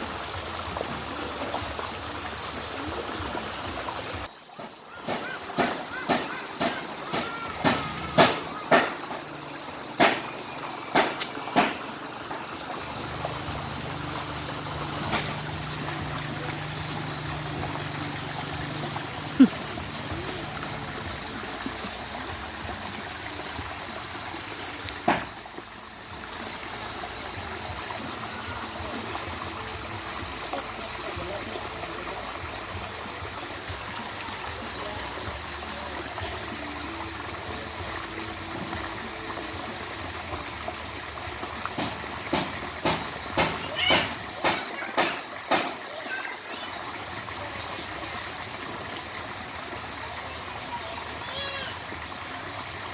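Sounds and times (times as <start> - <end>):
water trickling: 0.0 - 52.9
sharp knocks: 9.9 - 12.0, 41.8 - 45.8.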